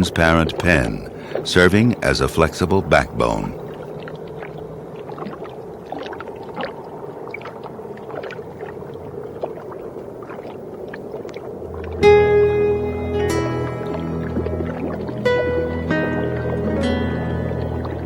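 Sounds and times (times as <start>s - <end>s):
low watery rush: 0.0s - 18.0s
music with held tones: 11.8s - 18.0s.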